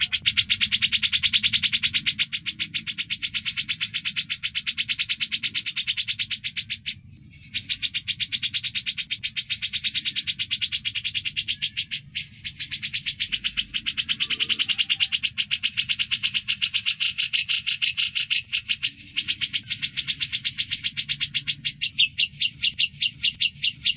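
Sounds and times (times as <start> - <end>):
bird trilling: 0.0 - 23.9.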